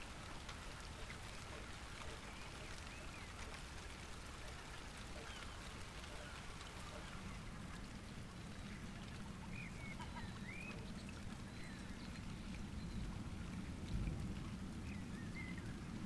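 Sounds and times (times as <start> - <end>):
light rain dripping: 0.0 - 16.0.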